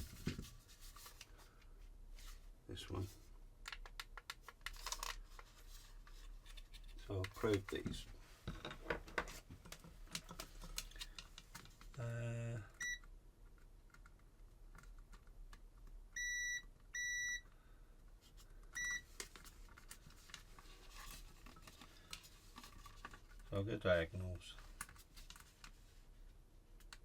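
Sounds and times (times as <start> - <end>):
multimeter continuity beeps: 12.8 - 13.0, 16.2 - 17.5, 18.8 - 19.0.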